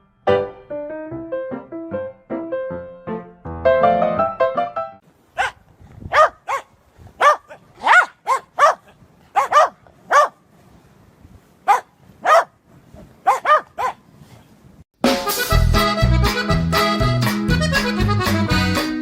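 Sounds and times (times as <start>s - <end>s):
dog barking high-pitched: 5.4s - 10.4s, 11.6s - 12.6s, 13.2s - 14.0s.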